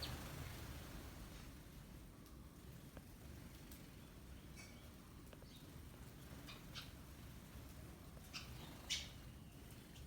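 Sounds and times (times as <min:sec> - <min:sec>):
low steady hiss: 0:00.0 - 0:10.0
sparrow chirping faintly: 0:08.2 - 0:10.0.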